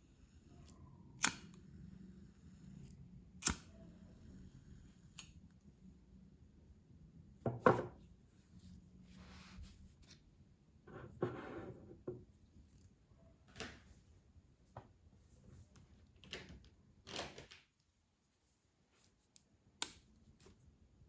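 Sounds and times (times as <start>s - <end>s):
faint brushing scratch: 8.3s - 10.2s.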